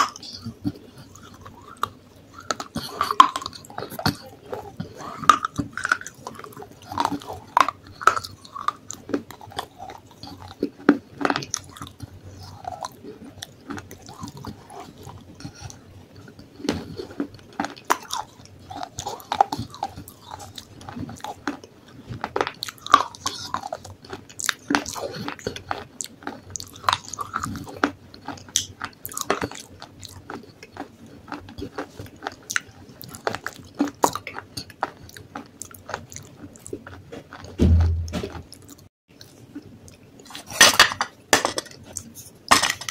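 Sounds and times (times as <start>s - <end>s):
crunching and chewing: 0.0s - 42.9s
dull thump: 37.6s - 38.4s.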